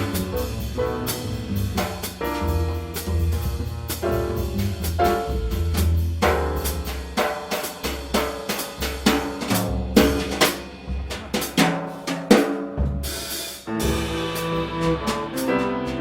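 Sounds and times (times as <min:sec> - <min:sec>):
walking bass notes: 0:00.0 - 0:07.2, 0:13.7 - 0:16.0
jazz band playing: 0:00.0 - 0:12.1, 0:12.8 - 0:16.0
drum kit hits: 0:00.0 - 0:16.0.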